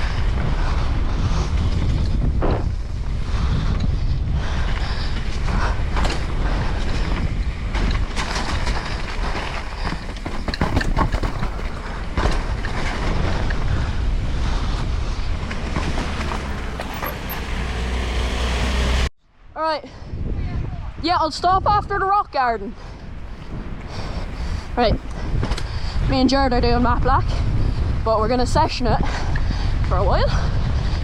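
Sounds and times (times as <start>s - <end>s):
bike tyre noise: 0.0s - 19.1s
wind buffeting microphone: 0.0s - 31.0s
bike knocks and rattles: 5.3s - 13.8s, 14.9s - 17.8s.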